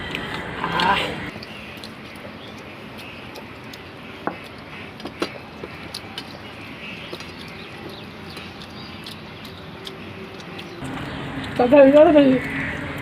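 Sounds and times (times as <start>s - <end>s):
chewing and fingers on plate: 0.8s - 10.8s.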